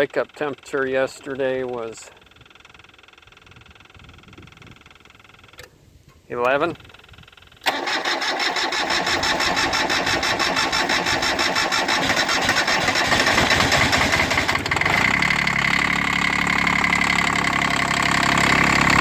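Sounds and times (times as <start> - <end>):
starter motor cranking: 7.6 - 15.9
diesel engine running: 7.6 - 19.0.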